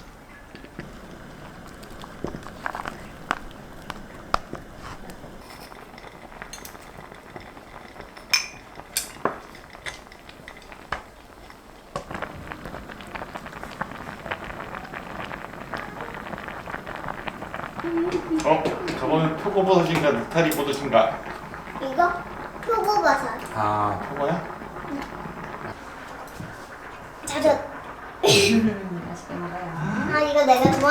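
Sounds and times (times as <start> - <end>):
small crackling sounds: 0.0 - 30.9
utensils clicking on dishes: 2.2 - 12.2.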